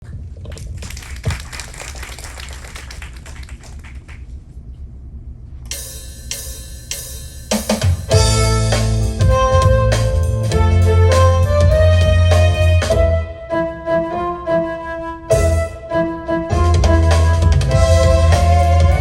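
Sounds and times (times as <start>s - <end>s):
heavy bass line: 8.1s - 13.4s, 16.5s - 19.0s
synthesizer keyboard chords: 8.1s - 19.0s.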